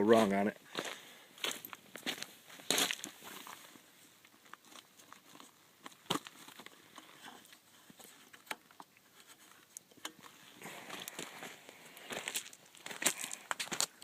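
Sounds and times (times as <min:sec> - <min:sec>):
faint crackles and clicks: 0:03.0 - 0:14.0.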